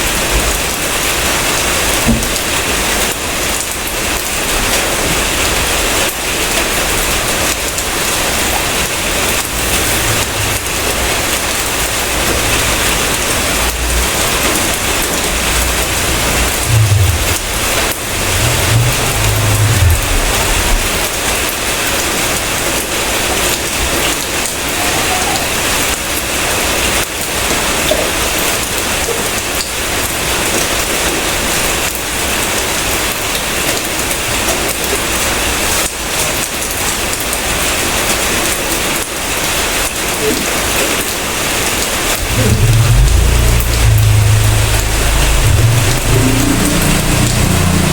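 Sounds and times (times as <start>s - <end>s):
steady rain falling: 0.0s - 47.9s
low rumble: 9.2s - 21.8s, 42.1s - 47.9s.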